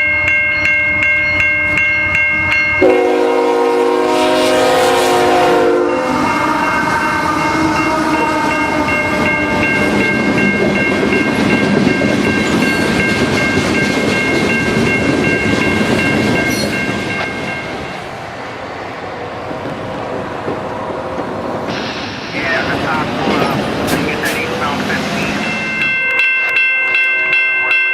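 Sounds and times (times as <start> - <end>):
bell ringing rapidly: 0.0 - 2.9, 7.7 - 17.8, 25.3 - 27.9
railcars rumbling and clattering: 0.0 - 27.9
train horn: 2.8 - 10.0.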